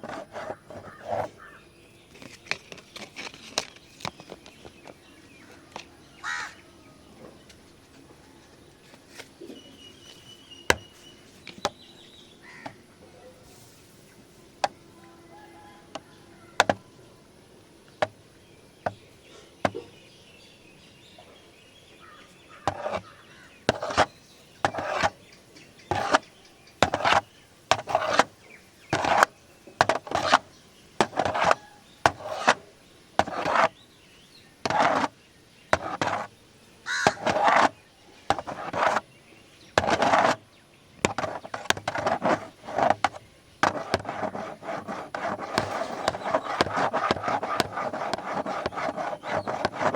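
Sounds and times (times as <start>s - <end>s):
scratching on camera body: 0.0s - 5.9s, 22.5s - 33.9s, 34.6s - 39.2s, 39.8s - 40.4s, 41.0s - 49.9s.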